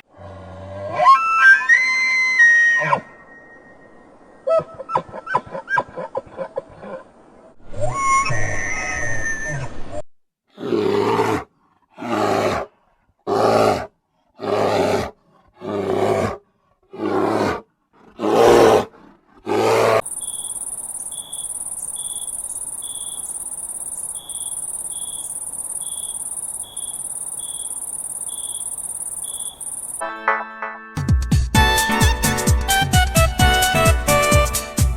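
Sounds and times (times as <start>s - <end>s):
animal calling loudly: 19.8s - 30.0s
insect chirring: 20.0s - 30.0s
short regular chirp: 20.0s - 30.0s.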